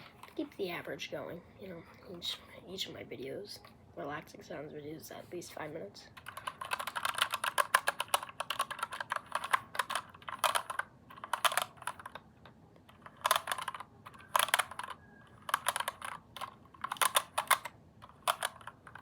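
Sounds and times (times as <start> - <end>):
computer keyboard typing: 6.1 - 19.0.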